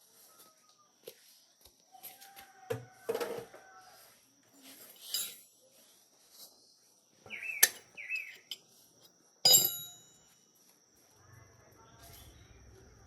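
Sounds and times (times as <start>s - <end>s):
faint high insect drone: 5.6s - 13.0s
bird chirps: 6.7s - 8.6s
metal clanks: 9.5s - 10.2s.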